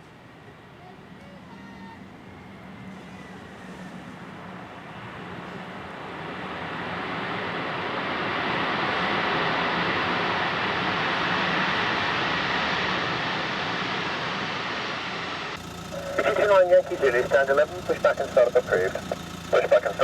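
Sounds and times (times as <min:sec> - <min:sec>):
airliner engine noise: 0:00.0 - 0:20.0.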